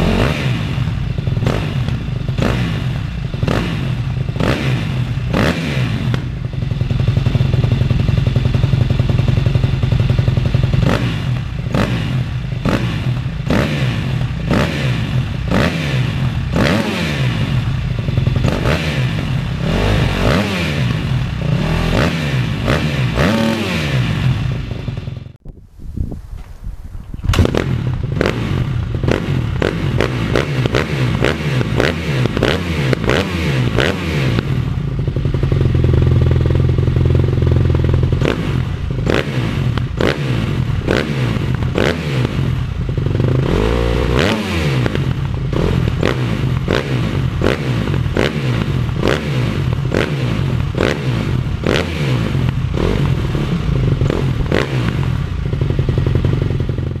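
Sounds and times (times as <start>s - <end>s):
motorcycle engine revving: 0.0s - 25.4s, 27.3s - 57.0s.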